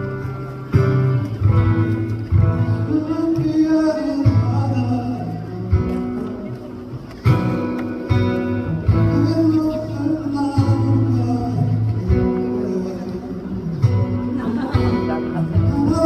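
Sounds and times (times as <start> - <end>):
acoustic guitar strumming: 0.0 - 16.0
man singing: 2.6 - 7.6, 8.8 - 16.0.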